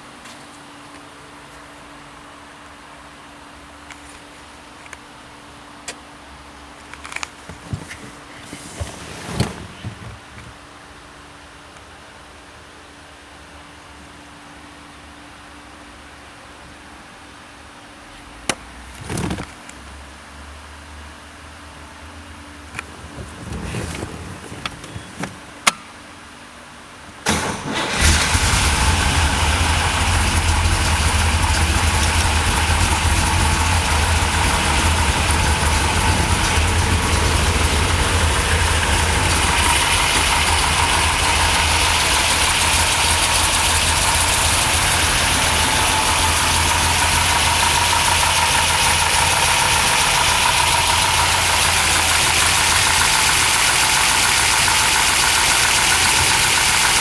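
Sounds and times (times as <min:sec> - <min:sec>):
car engine idling: 0:27.3 - 0:57.0
starter cranking: 0:27.3 - 0:57.0.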